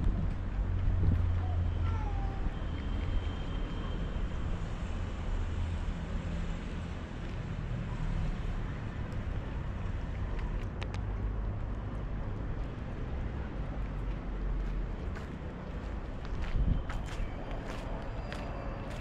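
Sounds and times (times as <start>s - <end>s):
low outdoor rumble: 0.0s - 3.9s.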